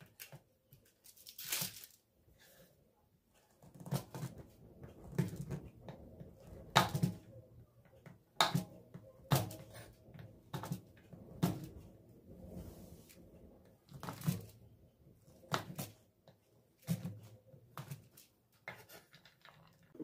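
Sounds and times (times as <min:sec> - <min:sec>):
objects knocking and clattering: 0:16.8 - 0:20.0.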